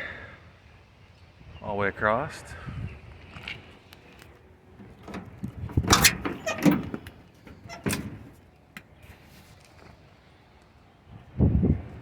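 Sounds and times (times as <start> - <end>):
door creak: 4.8 - 8.4
metal door clanks and scrapes: 4.8 - 8.4.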